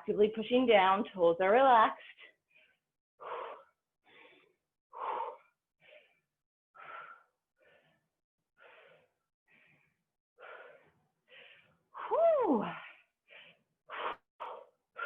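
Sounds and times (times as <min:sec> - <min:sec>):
person breathing heavily: 0:02.0 - 0:15.0.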